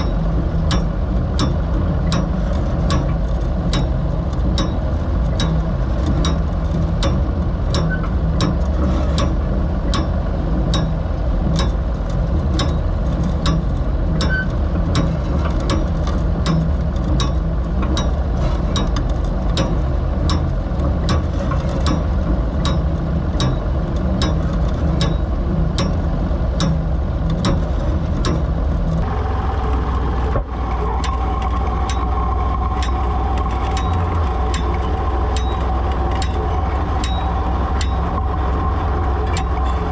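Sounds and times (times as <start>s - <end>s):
tractor engine running: 0.0s - 39.9s
mechanical clicking: 29.8s - 39.9s.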